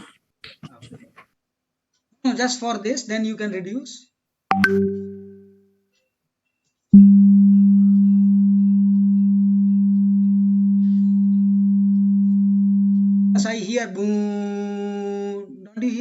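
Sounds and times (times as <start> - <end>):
click with low hum: 7.8 - 13.2.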